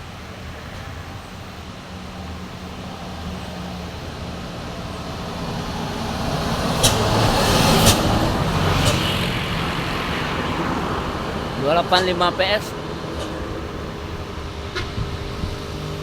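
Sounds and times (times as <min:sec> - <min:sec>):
diesel truck engine labouring: 0:00.0 - 0:16.0.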